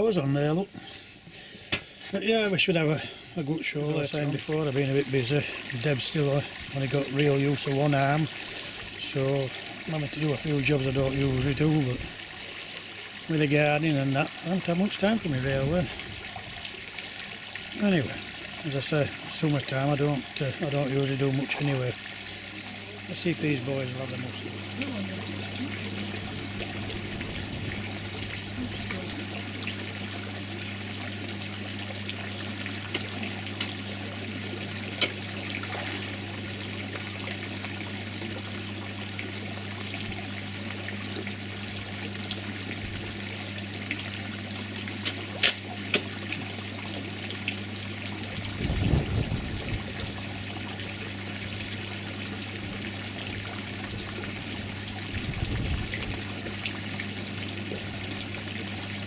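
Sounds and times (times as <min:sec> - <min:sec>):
pond pump electrical hum: 0:00.0 - 0:59.0
water trickling: 0:00.0 - 0:59.0
fish splashing at surface: 0:32.2 - 0:37.7.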